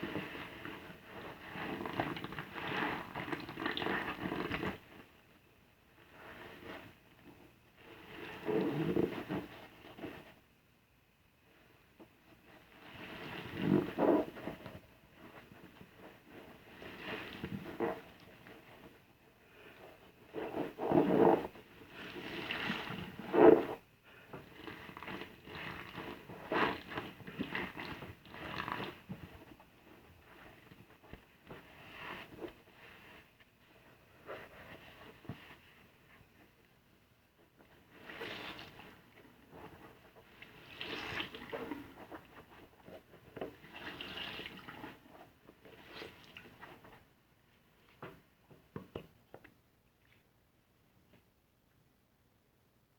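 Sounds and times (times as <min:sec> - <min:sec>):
wet sponge squelching: 0:37.9 - 0:42.6, 0:43.5 - 0:46.9.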